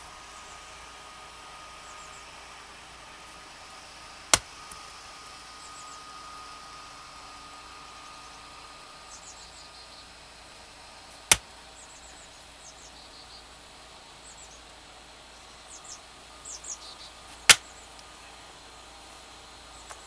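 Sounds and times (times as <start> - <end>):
axe striking log: 4.2 - 4.8, 11.2 - 11.5.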